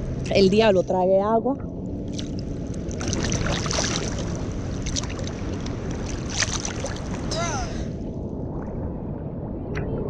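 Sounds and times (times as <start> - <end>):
wind on microphone: 0.0 - 10.0
water splashing: 1.8 - 7.9.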